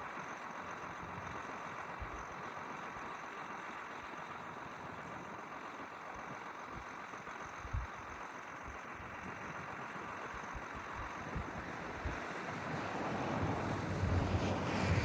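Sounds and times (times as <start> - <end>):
wind buffeting microphone: 11.3 - 15.0.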